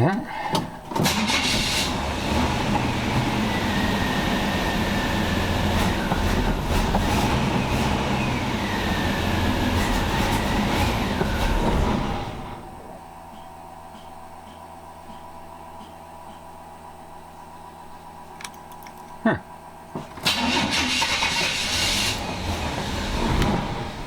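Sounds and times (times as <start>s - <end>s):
truck engine cranking on starter: 0.3s - 13.0s, 19.9s - 24.0s.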